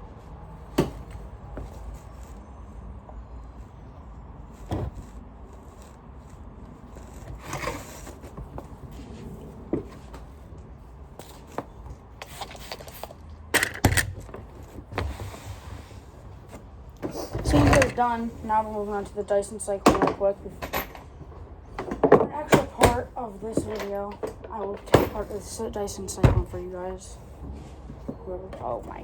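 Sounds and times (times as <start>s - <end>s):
knocks and rubbing of parts: 16.2s - 29.0s.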